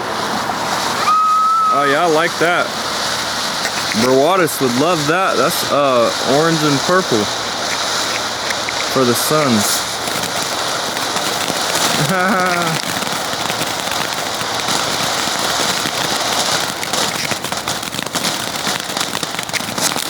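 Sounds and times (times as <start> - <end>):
firework fountain crackling hiss: 0.0 - 20.0
wavering voice: 1.0 - 2.2.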